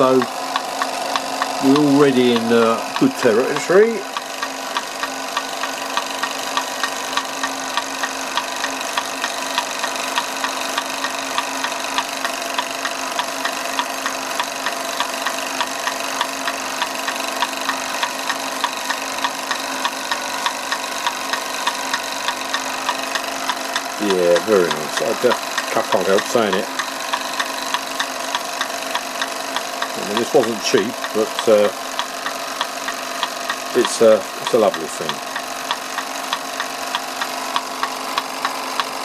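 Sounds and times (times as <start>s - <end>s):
light tapping of machinery: 0.0s - 39.0s
toy steam engine running: 0.0s - 39.0s.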